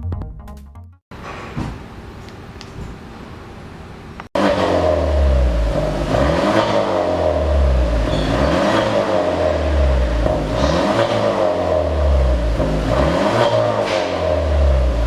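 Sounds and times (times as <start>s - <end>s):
car engine revving: 4.4s - 15.0s.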